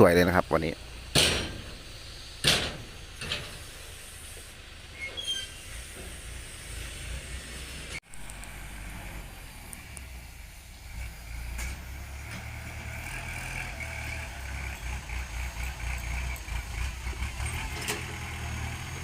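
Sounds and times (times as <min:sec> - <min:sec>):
heavy diesel machinery rumbling: 0:00.0 - 0:19.0
high metallic squeals: 0:04.9 - 0:07.1.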